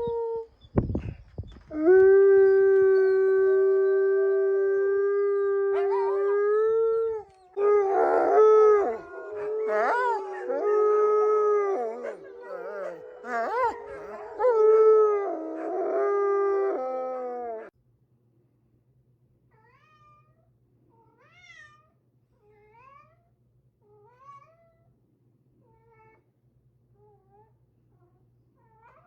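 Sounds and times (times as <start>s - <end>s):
dog howling: 1.7s - 17.7s
second dog howling: 7.1s - 17.7s.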